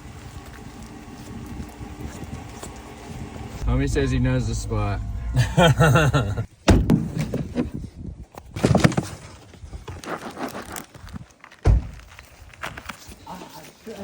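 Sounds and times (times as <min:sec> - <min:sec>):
indistinct voices talking: 0:03.6 - 0:06.5
loud dull thump: 0:03.6 - 0:07.2.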